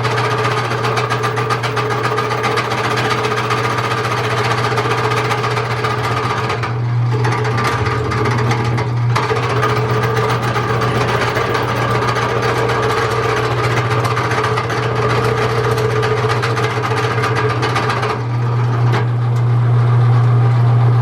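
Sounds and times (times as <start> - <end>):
drill press motor hum: 0.0 - 20.9
drill grinding through metal: 7.3 - 18.3.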